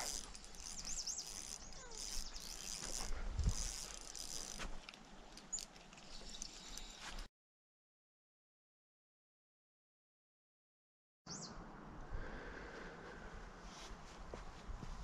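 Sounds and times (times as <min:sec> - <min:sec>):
small birds singing: 0:00.1 - 0:03.0, 0:05.1 - 0:07.3, 0:11.3 - 0:11.6.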